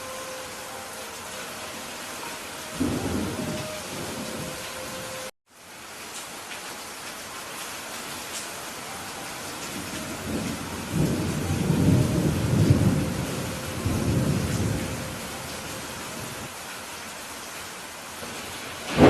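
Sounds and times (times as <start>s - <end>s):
steady rain: 0.0s - 19.0s
thunder rumbling: 2.8s - 5.3s, 9.7s - 16.5s, 18.3s - 19.0s.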